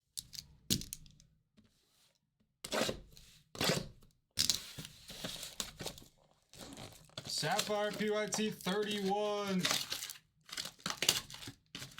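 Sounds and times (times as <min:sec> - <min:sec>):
cards and packaging rustling: 0:04.5 - 0:11.9.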